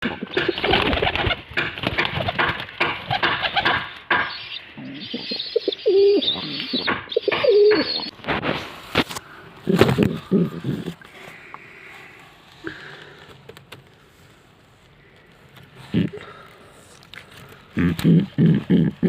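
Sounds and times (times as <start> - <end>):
pigeons cooing: 0.0 - 8.2, 9.6 - 11.1, 17.7 - 19.0
rustling and clicking: 7.4 - 19.0.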